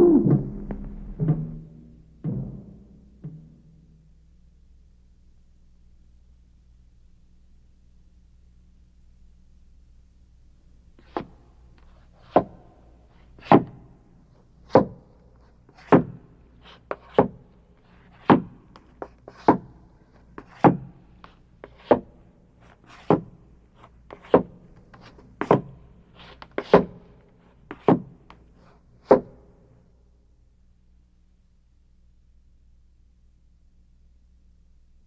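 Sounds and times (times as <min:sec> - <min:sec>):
low steady hum: 0:00.0 - 0:11.8.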